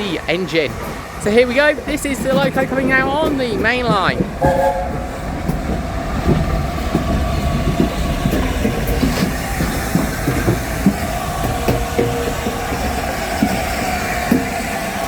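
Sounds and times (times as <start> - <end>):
wheels clanking over track: 0.0 - 15.0
low rumble: 4.2 - 7.7
steady held tone: 4.4 - 5.6.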